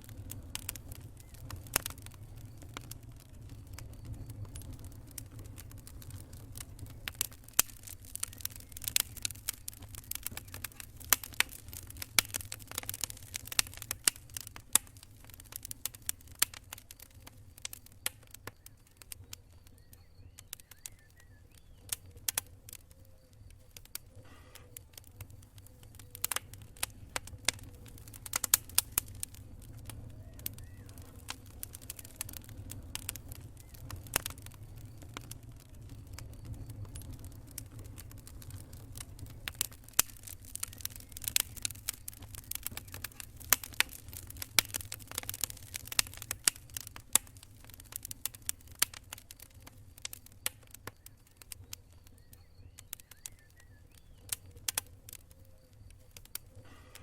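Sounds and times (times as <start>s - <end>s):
campfire pops and snaps: 0.0s - 57.0s
fire low rumble: 0.0s - 57.0s.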